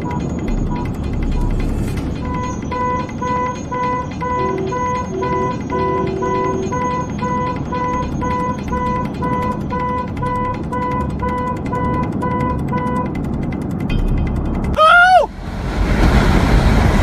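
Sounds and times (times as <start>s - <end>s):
electronic alarm beeping: 0.0s - 13.2s
low rumbling noise: 0.0s - 17.0s.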